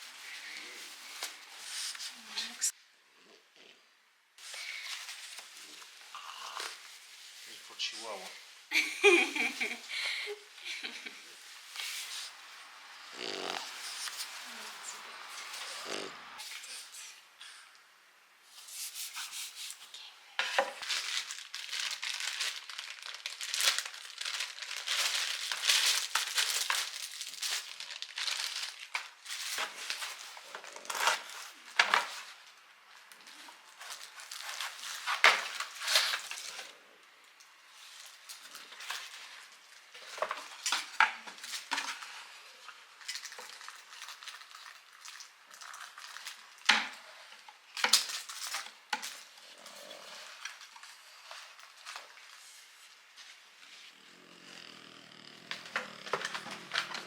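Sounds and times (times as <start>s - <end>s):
packaging rustling and crinkling: 20.4s - 36.8s, 42.8s - 53.6s, 55.5s - 57.0s.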